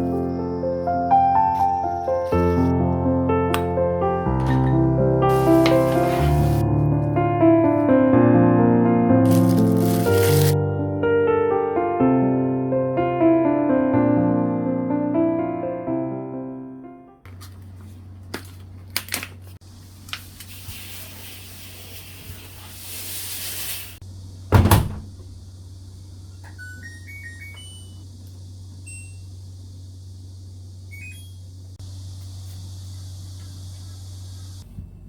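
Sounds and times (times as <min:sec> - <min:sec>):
low hum: 0:24.0 - 0:35.0
washing machine clicks: 0:24.5 - 0:25.4
washing machine door thump: 0:24.5 - 0:25.4
control panel beeps: 0:26.5 - 0:28.0, 0:28.8 - 0:29.3, 0:30.9 - 0:31.4.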